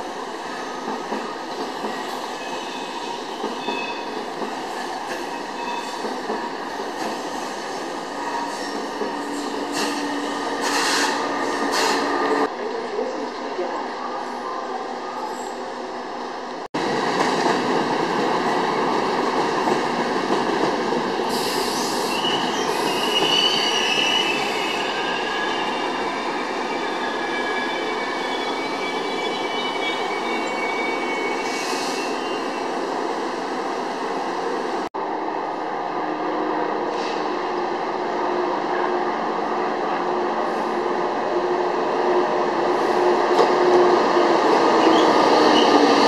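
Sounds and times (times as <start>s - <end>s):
train wheels squealing on rails: 0.1s - 12.5s, 21.2s - 32.9s, 44.7s - 46.0s.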